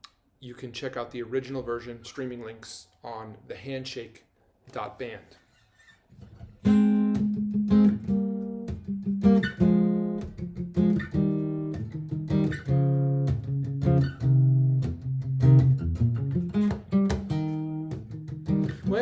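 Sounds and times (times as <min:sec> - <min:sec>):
acoustic guitar chords: 0:06.7 - 0:19.0.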